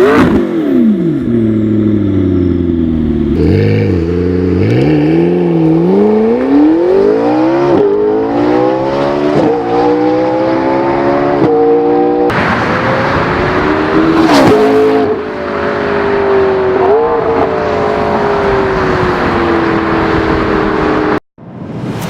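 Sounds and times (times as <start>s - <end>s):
sudden rush of noise: 12.3s - 15.0s, 21.4s - 22.0s.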